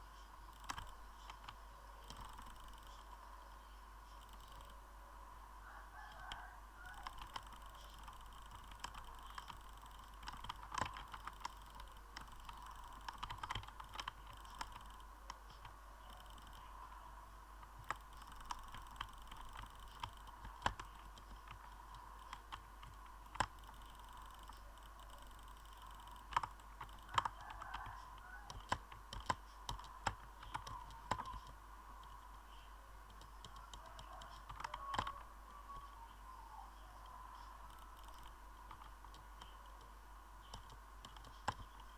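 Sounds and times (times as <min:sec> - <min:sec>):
faint steady hum: 0:00.0 - 0:41.9
keyboard key clicks: 0:07.0 - 0:16.6, 0:17.6 - 0:32.4, 0:33.1 - 0:35.3.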